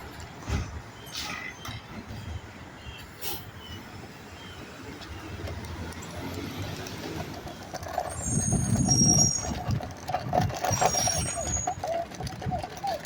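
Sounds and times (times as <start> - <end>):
garbage truck diesel engine: 0.0 - 13.0
high-pitched squeals: 8.0 - 9.8, 10.6 - 12.1.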